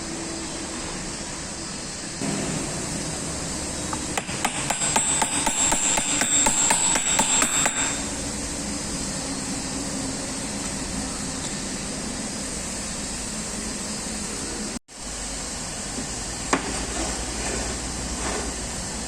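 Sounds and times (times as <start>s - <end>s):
steady hiss: 0.0s - 19.0s
hammer striking metal: 3.9s - 8.2s.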